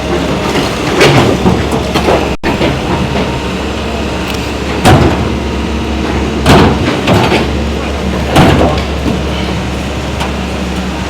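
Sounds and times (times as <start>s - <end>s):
engine running: 0.0s - 11.0s
demolition knocks and clatters: 0.1s - 3.4s, 4.7s - 5.4s, 6.0s - 10.4s.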